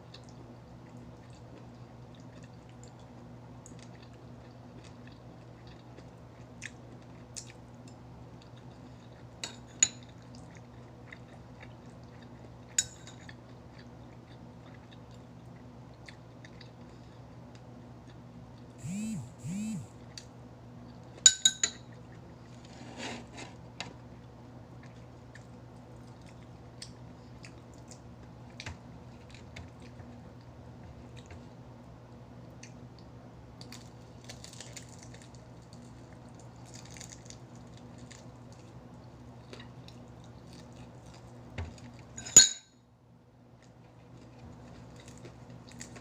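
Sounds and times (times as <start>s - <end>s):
steady low hum: 0.0s - 46.0s
cutlery clinking against dishes: 21.3s - 21.8s, 42.2s - 42.6s.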